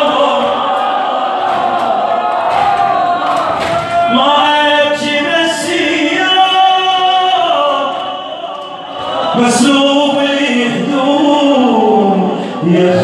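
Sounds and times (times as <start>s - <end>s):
man chanting unaccompanied: 0.0s - 0.8s.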